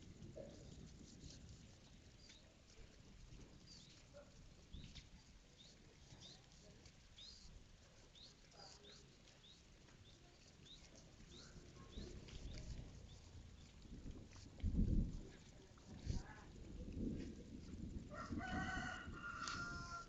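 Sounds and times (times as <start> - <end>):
faint high-pitched bird chirps: 3.7 - 13.7.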